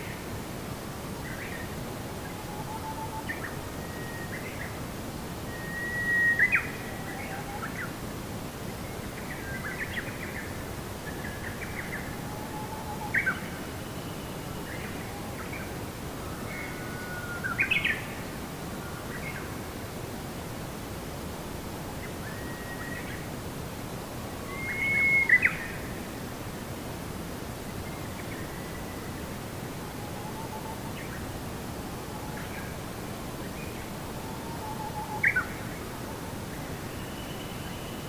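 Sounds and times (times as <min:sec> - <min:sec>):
background hiss: 0:00.0 - 0:38.0.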